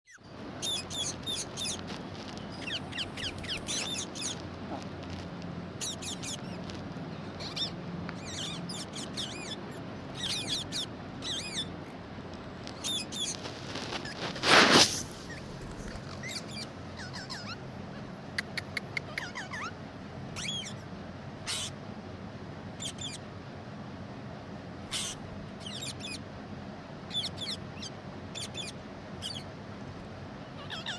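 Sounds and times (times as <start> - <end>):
parrot chirping: 0.1 - 4.8, 5.8 - 11.8, 12.7 - 13.4, 15.2 - 21.8, 22.8 - 23.2, 24.9 - 26.2, 27.1 - 29.5, 30.5 - 30.9.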